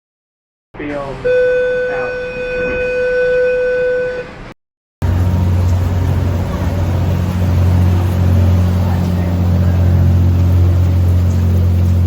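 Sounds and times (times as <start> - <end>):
ferry engines rumbling: 5.0 - 12.0.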